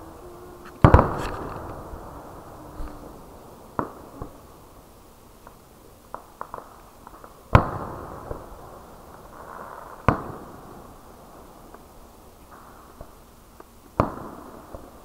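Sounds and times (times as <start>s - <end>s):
small fireworks pops: 0.6s - 2.2s, 5.4s - 10.6s, 11.7s - 15.0s.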